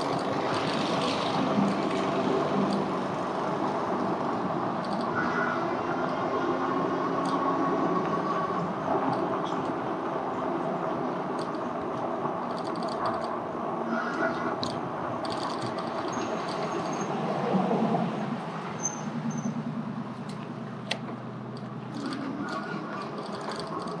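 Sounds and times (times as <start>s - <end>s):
tyres and wind rumble: 0.0s - 24.0s
light rattles and clicks: 11.3s - 13.4s, 20.2s - 24.0s.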